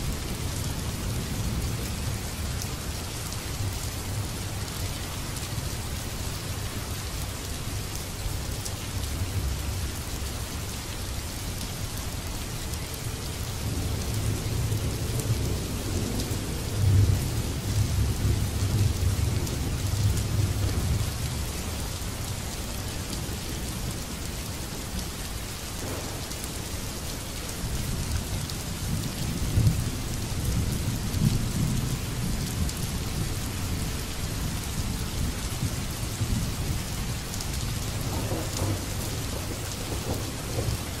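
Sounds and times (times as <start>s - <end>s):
rain hissing on wet surface: 0.0s - 41.0s
thunder rolling: 38.0s - 40.8s.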